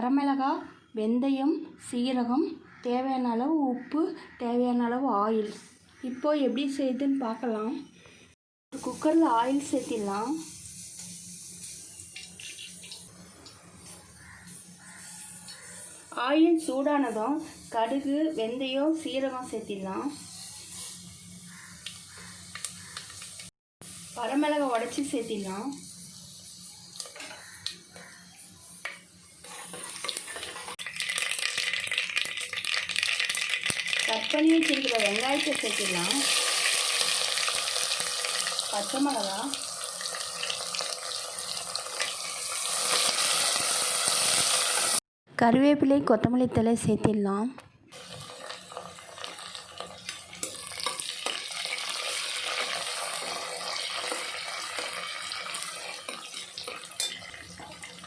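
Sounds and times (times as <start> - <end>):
spices sizzling in hot oil: 8.7 - 45.0, 47.9 - 58.0.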